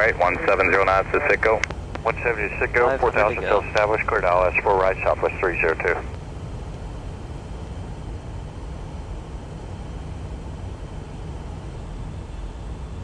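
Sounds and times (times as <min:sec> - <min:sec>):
aircraft cockpit engine rumble: 0:00.0 - 0:13.0.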